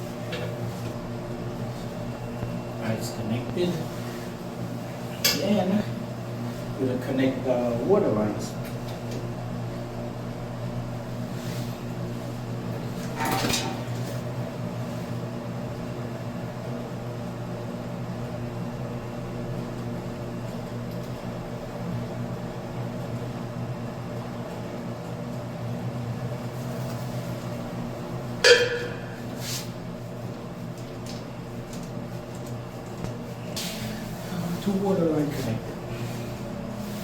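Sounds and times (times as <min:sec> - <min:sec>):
steady mechanical hum: 0:00.0 - 0:37.0.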